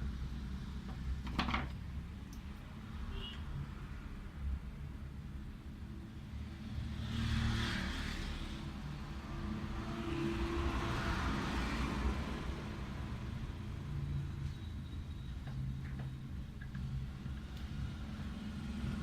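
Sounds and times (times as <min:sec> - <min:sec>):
vehicles passing: 0:01.8 - 0:19.0
traffic low rumble: 0:12.0 - 0:19.0.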